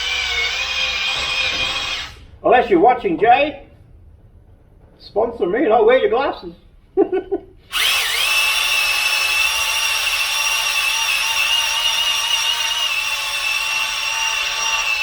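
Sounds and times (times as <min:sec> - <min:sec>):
electric drill whine: 0:00.0 - 0:02.2, 0:07.7 - 0:15.0.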